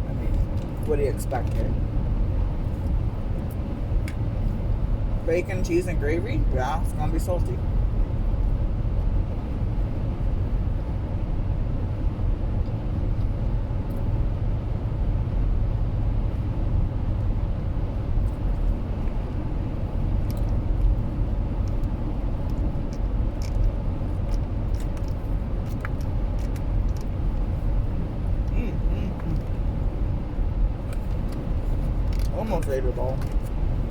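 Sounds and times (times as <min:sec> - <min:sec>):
car road rumble from inside: 0:00.0 - 0:33.9.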